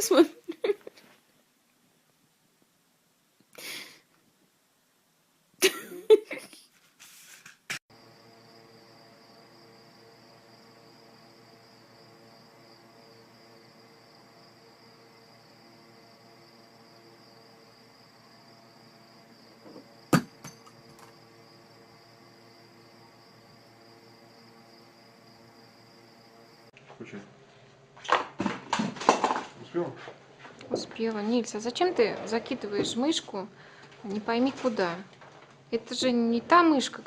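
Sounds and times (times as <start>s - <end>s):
sharp knock: 20.1s - 20.6s.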